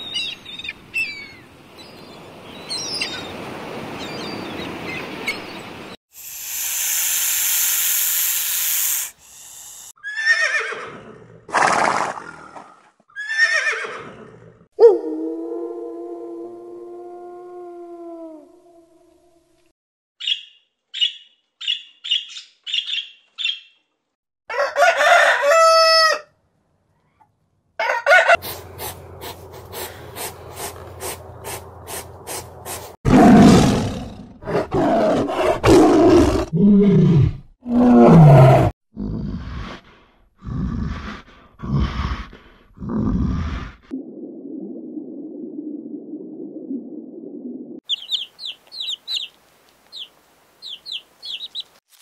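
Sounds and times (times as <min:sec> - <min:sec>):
animal call with falling tone: 0:47.9 - 0:49.3
short high chirps: 0:47.9 - 0:49.3.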